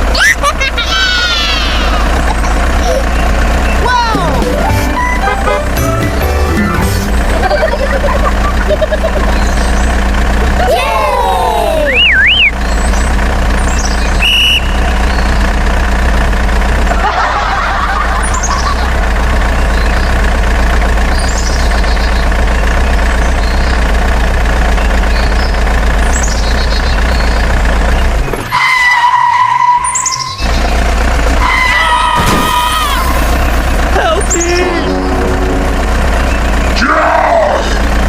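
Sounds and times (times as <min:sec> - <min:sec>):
model truck engine hum: 0:00.0 - 0:38.0
short falling whistles: 0:11.9 - 0:12.6, 0:14.2 - 0:14.8.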